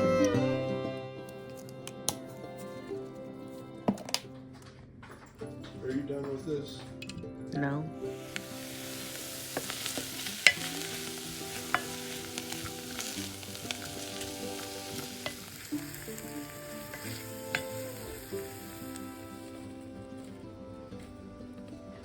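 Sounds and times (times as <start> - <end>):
soft background music: 0.0 - 22.0
food sizzling in a pan: 8.0 - 21.0
utensil clicking against pan: 8.3 - 18.2.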